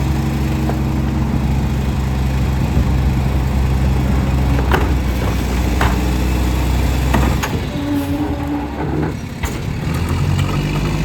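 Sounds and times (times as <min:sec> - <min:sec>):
garbage truck engine drone: 0:00.0 - 0:11.0
sharp metallic knocks: 0:04.6 - 0:06.3.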